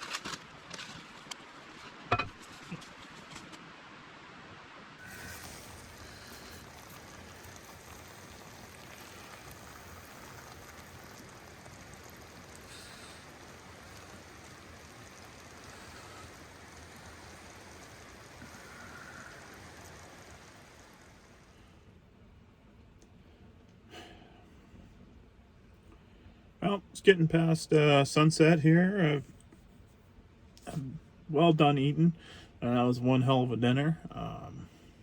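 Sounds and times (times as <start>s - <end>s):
steady rushing hiss: 3.0s - 21.9s.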